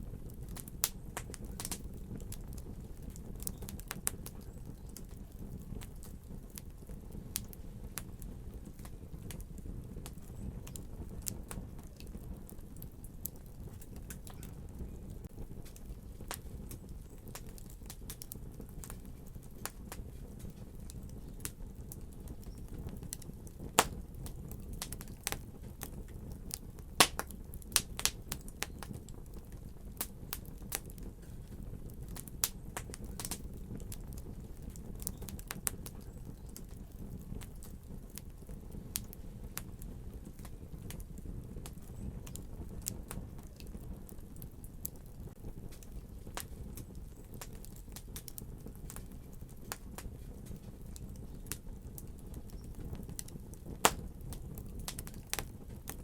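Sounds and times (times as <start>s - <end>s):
sharp pops of fire: 0.0s - 56.0s
wood fire crackling: 0.0s - 56.0s.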